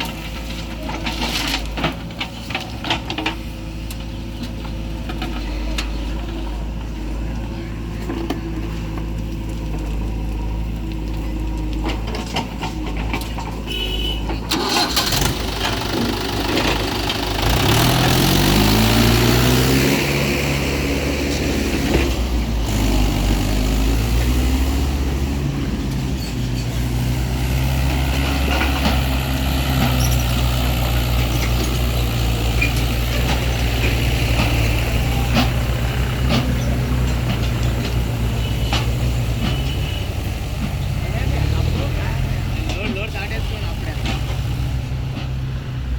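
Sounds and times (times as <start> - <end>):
heavy diesel engine revving: 3.6 - 45.9.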